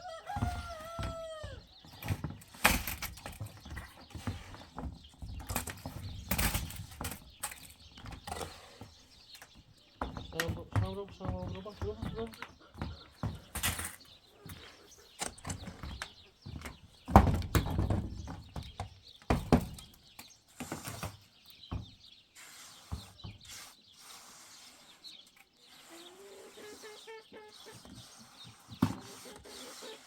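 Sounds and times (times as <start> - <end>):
knocks and scuffing: 0.0 - 20.0.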